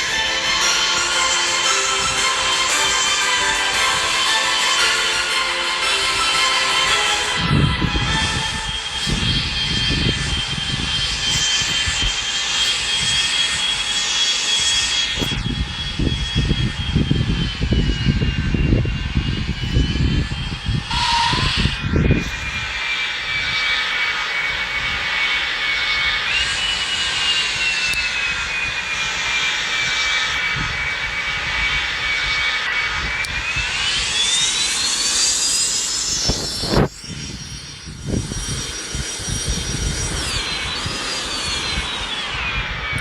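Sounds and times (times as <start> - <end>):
jet engines whining: 0.0 - 43.0
rush of noise: 0.0 - 43.0
low rumbling: 14.9 - 43.0.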